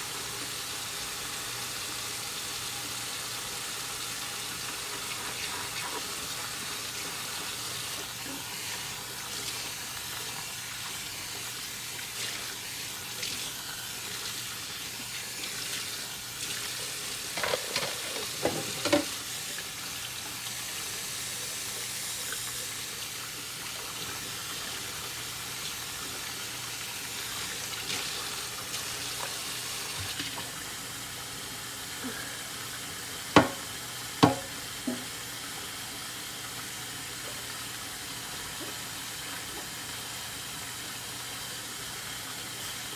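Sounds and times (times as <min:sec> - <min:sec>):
water running at a sink: 0:00.0 - 0:42.9
dishes and utensils clinking: 0:17.3 - 0:19.2, 0:33.4 - 0:35.1.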